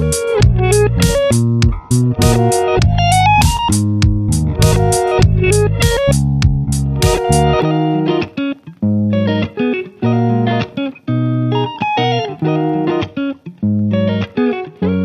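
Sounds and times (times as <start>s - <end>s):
guitar background music: 0.0s - 15.0s.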